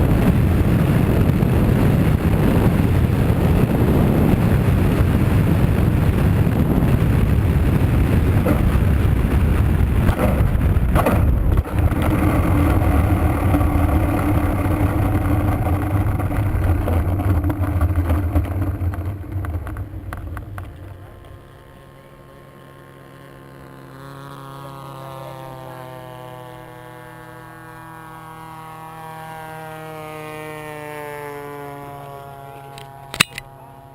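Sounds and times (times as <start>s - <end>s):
loud low rumbling: 0.0s - 23.5s
small engine drone: 0.0s - 33.9s.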